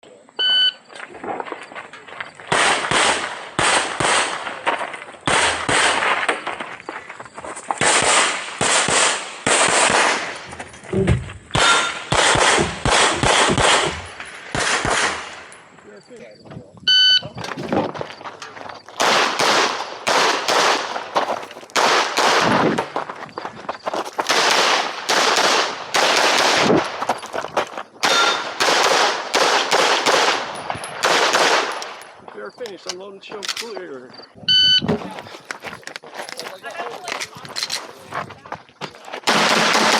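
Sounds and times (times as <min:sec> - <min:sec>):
pistol shots echoing: 0:02.5 - 0:06.7, 0:07.8 - 0:10.5, 0:11.5 - 0:15.5, 0:19.0 - 0:22.6, 0:24.3 - 0:27.0, 0:28.0 - 0:32.1, 0:39.2 - 0:39.9.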